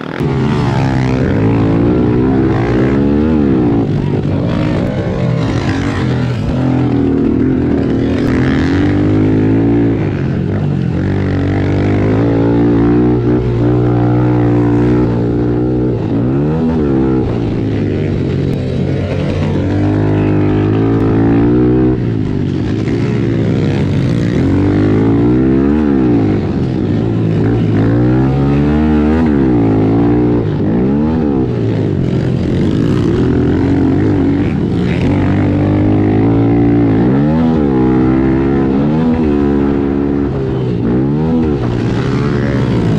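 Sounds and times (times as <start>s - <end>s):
pit bike engines revving: 0.0s - 42.9s.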